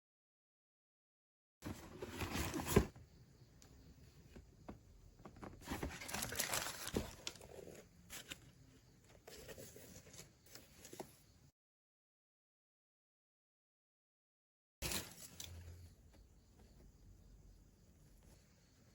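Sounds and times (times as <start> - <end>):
rustling crinkling handling noise: 5.2 - 8.6.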